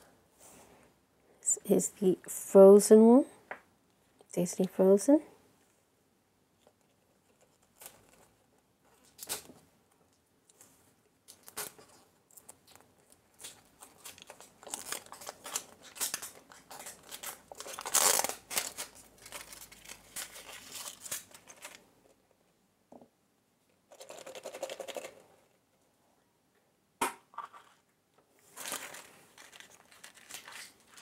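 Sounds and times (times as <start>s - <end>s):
plastic packaging crinkling: 11.2s - 21.8s, 28.5s - 31.0s.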